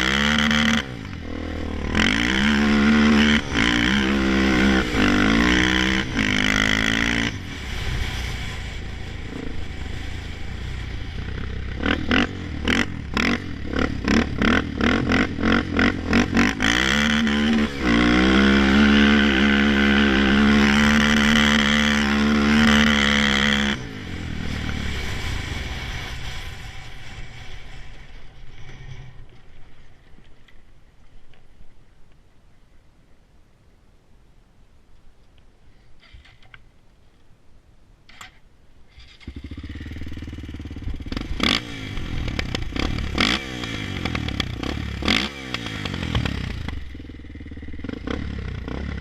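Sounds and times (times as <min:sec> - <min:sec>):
quad bike engine revving: 0:00.0 - 0:29.1, 0:38.9 - 0:49.0.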